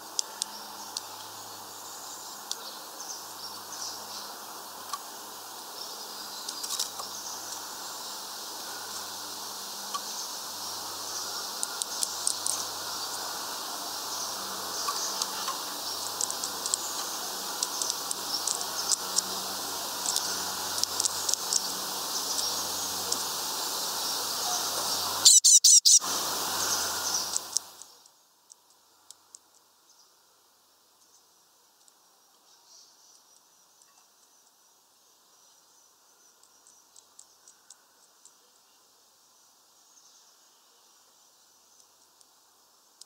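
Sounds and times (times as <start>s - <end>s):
small birds chirping: 0.0s - 30.2s, 31.0s - 42.3s
steady high hiss: 0.0s - 43.0s
shrill bird calls: 24.4s - 27.4s.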